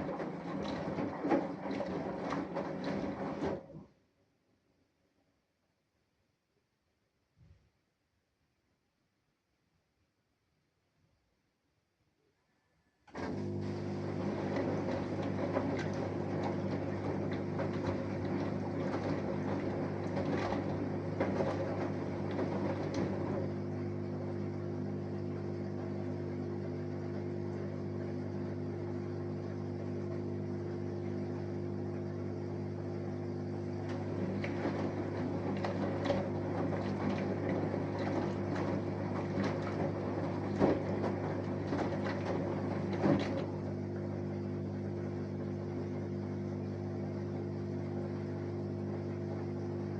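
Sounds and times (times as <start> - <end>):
laundry and water churning: 0.0 - 4.0, 13.1 - 49.9
washing machine motor hum: 0.0 - 4.2, 13.1 - 49.9.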